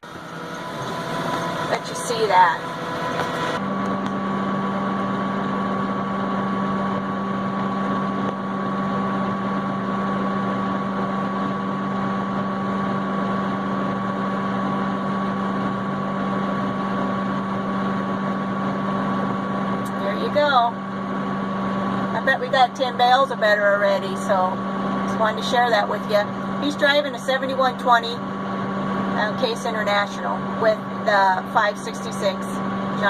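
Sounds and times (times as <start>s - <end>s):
faint higher hum: 0.0s - 33.0s
tractor engine droning: 0.0s - 33.0s.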